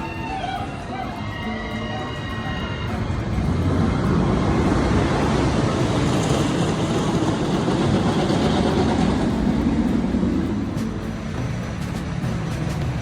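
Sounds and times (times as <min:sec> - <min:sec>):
ride train rumbling on track: 0:00.0 - 0:13.0.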